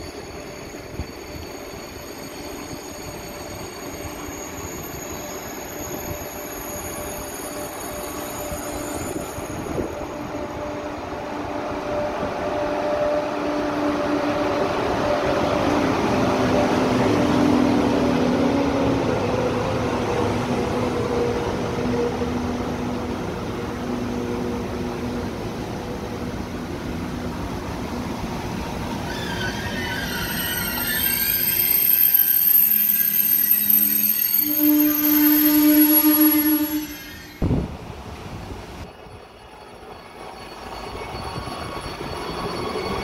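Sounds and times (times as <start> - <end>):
brake squeal: 0.0 - 10.5, 28.9 - 37.5, 38.9 - 43.0
train motor whine: 28.5 - 37.8.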